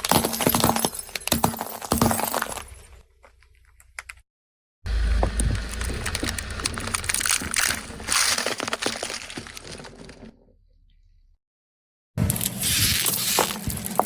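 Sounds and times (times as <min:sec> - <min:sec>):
tyre crushing object crackling: 0:04.9 - 0:10.2
low rumble: 0:04.9 - 0:11.4.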